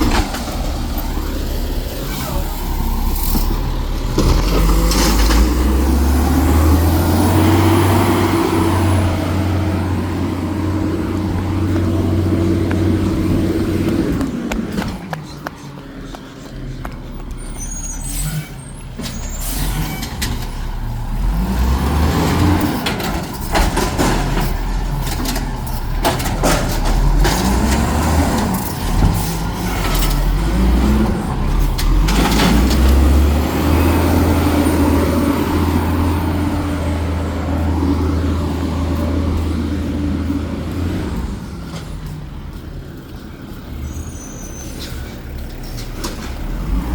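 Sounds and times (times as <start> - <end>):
diesel engine revving: 0.0 - 46.9
metal clanks and knocks: 22.7 - 30.3.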